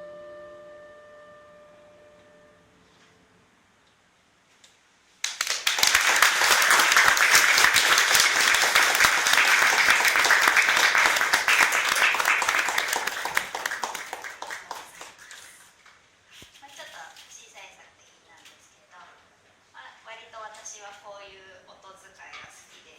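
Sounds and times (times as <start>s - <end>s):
audience applauding: 5.2s - 15.7s.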